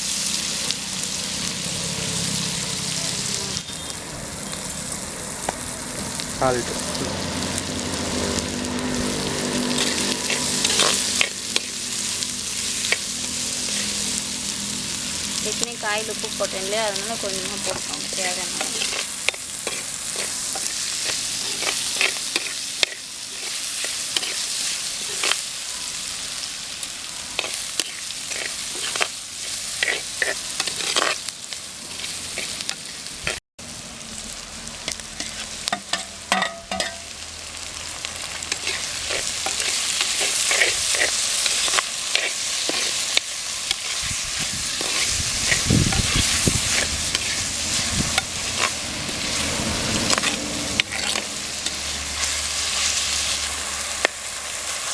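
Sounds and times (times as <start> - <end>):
food frying in hot oil: 0.0 - 54.9
spoon scraping and clicking on pan: 29.8 - 31.2, 34.9 - 37.1.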